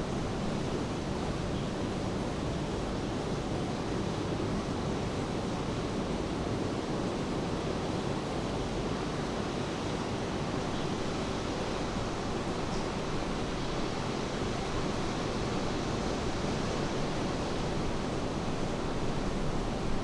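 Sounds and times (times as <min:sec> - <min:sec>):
steady rain: 0:10.4 - 0:20.0.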